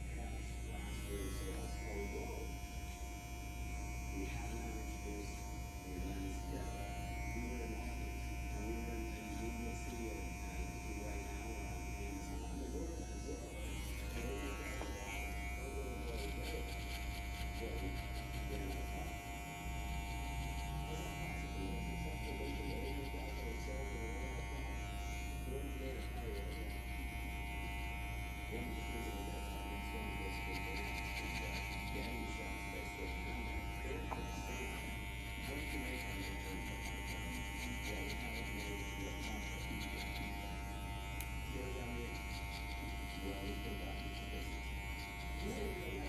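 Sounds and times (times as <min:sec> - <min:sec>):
electric hair clippers humming: 0:00.0 - 0:46.0.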